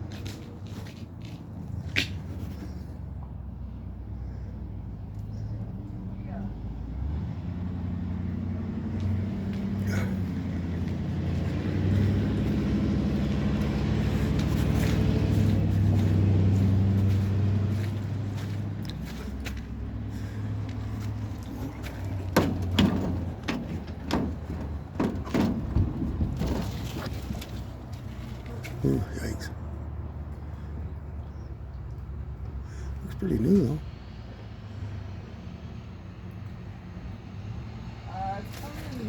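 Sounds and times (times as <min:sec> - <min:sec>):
sharp knocks and clacks: 0:21.4 - 0:27.0.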